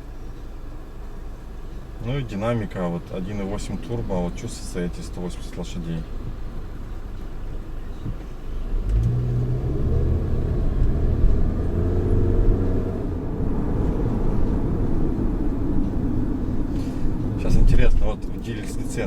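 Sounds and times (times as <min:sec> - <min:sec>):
car engine accelerating: 0:06.1 - 0:19.0.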